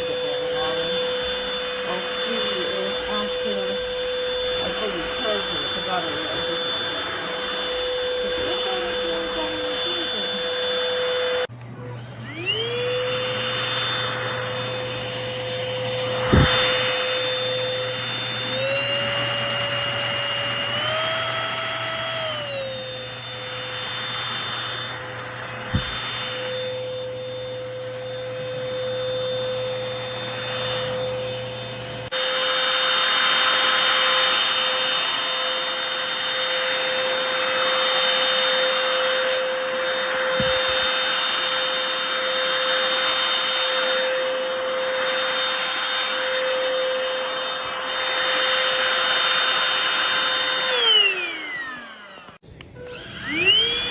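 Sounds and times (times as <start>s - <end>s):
stick vacuum motor whine: 0.0s - 53.9s
sharp knocks: 25.7s - 26.0s.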